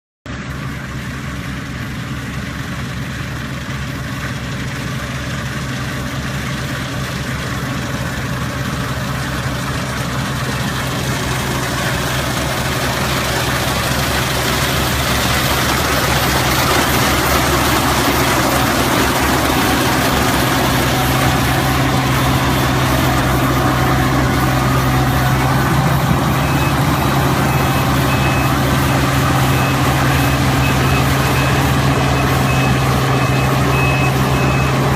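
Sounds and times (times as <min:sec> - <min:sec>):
heavy machine engine running: 0:00.3 - 0:34.9
faint repeated beep: 0:24.4 - 0:34.9.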